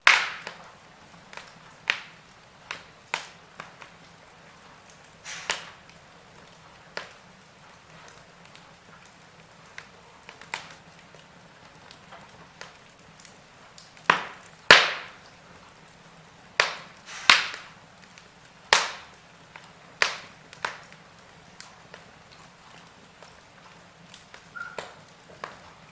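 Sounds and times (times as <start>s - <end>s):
wood fire crackling: 0.0s - 25.9s.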